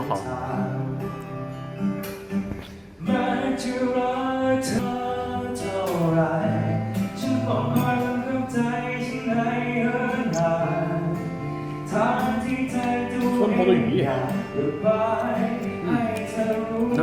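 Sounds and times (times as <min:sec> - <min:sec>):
man singing: 0:00.0 - 0:01.1, 0:03.0 - 0:17.0
acoustic guitar: 0:00.0 - 0:17.0.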